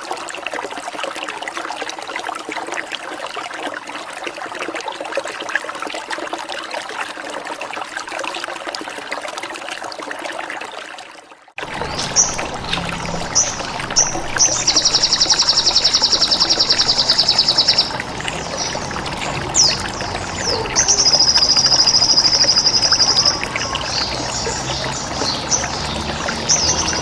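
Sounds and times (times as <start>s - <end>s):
water trickling: 0.0s - 27.0s
songbird chirps: 11.6s - 27.0s
rapid buzzing bird trills: 11.7s - 25.6s.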